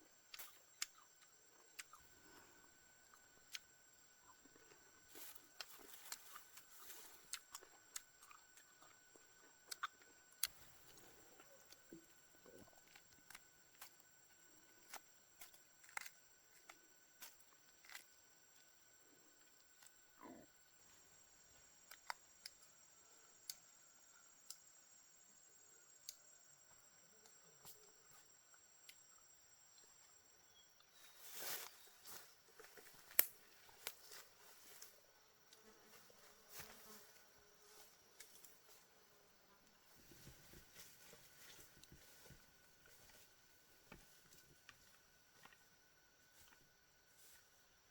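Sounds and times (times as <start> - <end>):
faint high-pitched hum: 0.0 - 47.9.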